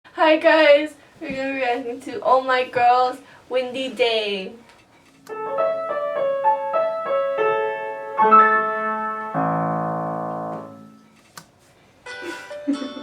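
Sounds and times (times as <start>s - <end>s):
piano melody and chord: 5.3s - 11.1s.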